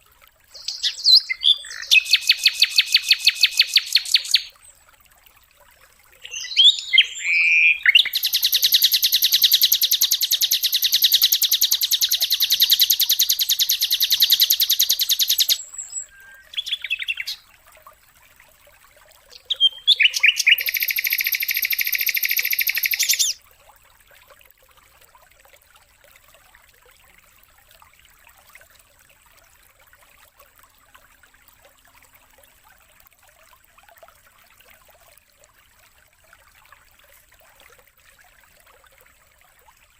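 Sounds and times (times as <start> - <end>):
songbird buzzing trills: 6.3 - 17.4, 19.4 - 23.4.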